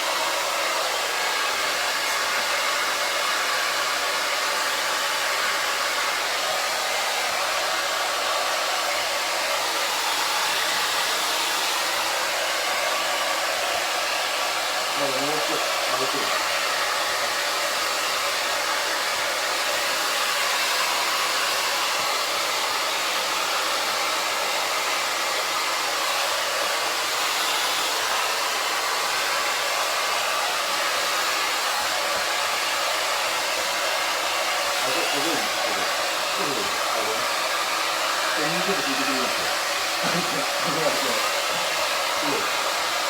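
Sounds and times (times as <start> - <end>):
hair dryer blowing: 0.0 - 43.0.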